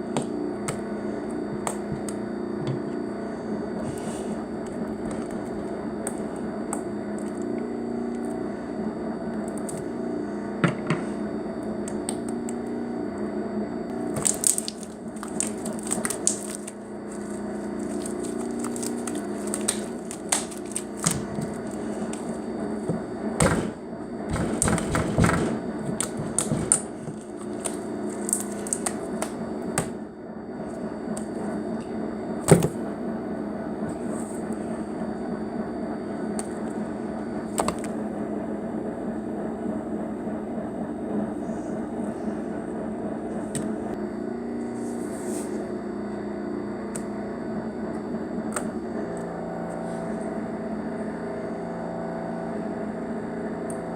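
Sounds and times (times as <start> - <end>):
background hum: 0.0 - 38.0
slime squished by hand: 14.1 - 22.3.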